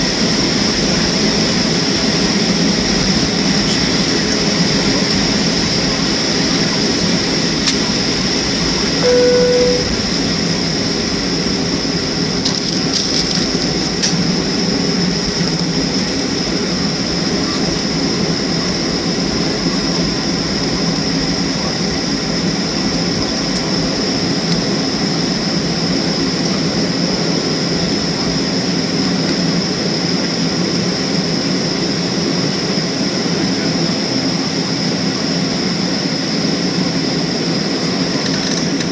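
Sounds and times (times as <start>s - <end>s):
jet engines humming: 0.0s - 38.9s
high whine: 4.6s - 12.5s
single tone: 8.9s - 10.2s.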